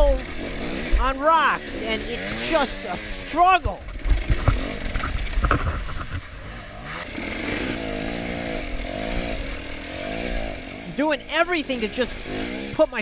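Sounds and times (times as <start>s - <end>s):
dirt bike engine revving: 0.0s - 13.0s
bike knocking over rocks: 3.8s - 6.3s.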